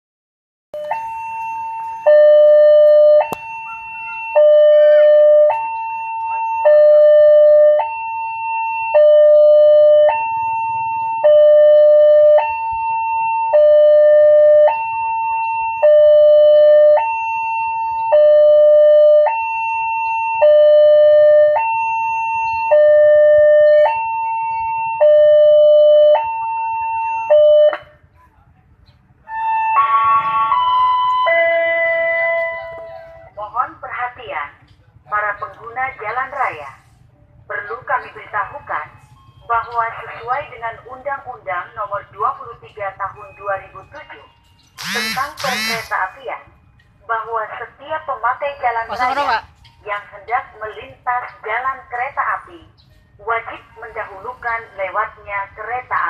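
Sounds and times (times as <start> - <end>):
level crossing two-tone alarm: 0.8 - 27.8, 42.8 - 46.8.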